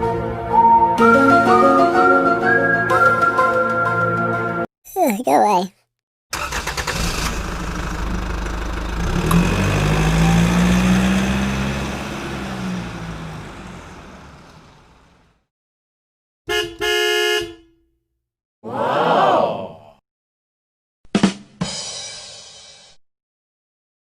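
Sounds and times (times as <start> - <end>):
vehicle engine running: 7.4 - 15.4
horn honking: 16.5 - 17.8.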